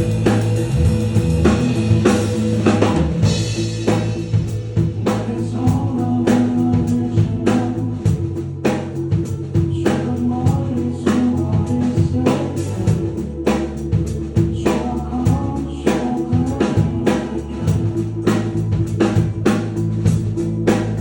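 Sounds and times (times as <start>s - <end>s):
band music: 0.0s - 21.0s
person singing: 5.0s - 8.6s, 9.5s - 13.3s, 14.5s - 18.4s.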